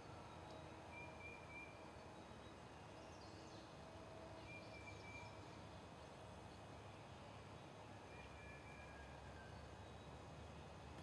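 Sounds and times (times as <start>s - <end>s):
faint whistled bird notes: 8.1s - 10.1s.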